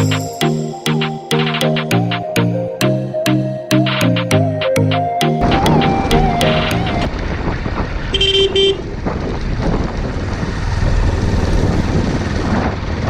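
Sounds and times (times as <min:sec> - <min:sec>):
road traffic: 0:05.4 - 0:13.0
vehicle horn honk: 0:08.1 - 0:08.8.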